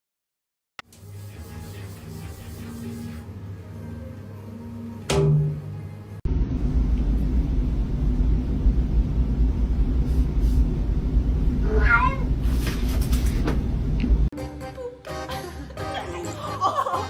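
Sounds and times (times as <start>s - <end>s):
steady low rumble: 6.3s - 12.6s
cat meowing: 11.6s - 12.3s.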